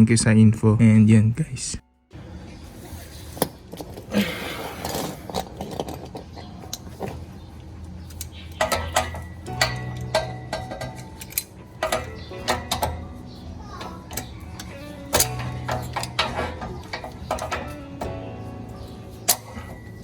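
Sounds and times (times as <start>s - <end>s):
light metallic clinks: 4.8s - 20.0s.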